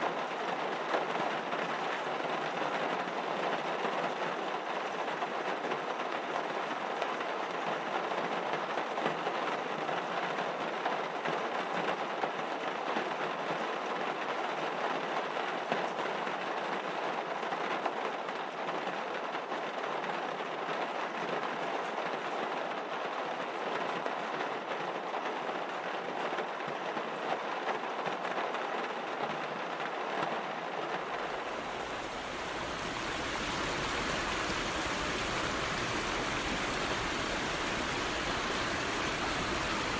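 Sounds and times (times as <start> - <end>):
steady rushing noise: 31.1 - 39.9.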